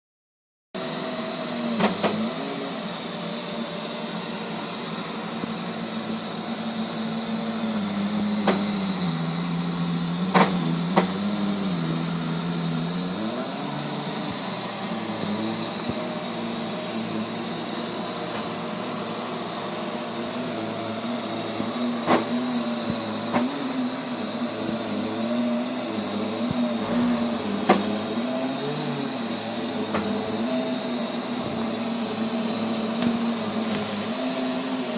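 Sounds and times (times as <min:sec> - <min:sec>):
robot vacuum droning hum: 0:00.8 - 0:34.9.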